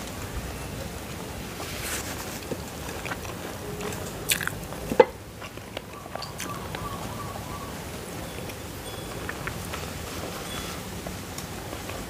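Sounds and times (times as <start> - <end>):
person chewing food: 2.8 - 6.6
sharp mouth clicks: 4.3 - 4.6.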